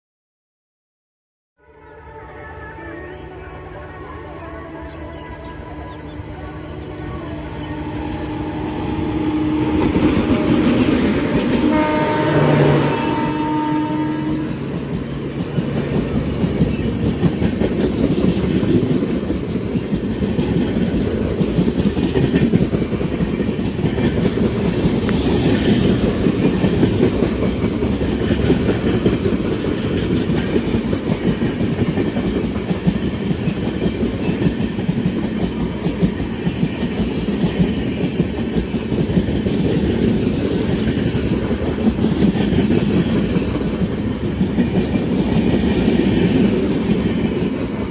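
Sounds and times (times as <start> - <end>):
train wheels clattering over rails: 14.3 - 47.9.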